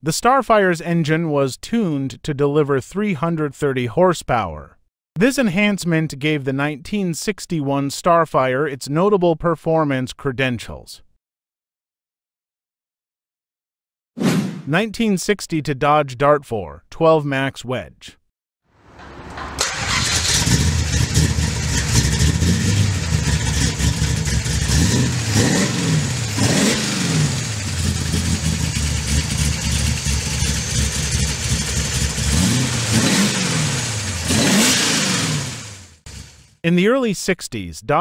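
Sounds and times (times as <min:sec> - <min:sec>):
car engine idling and revving: 0:18.8 - 0:36.5.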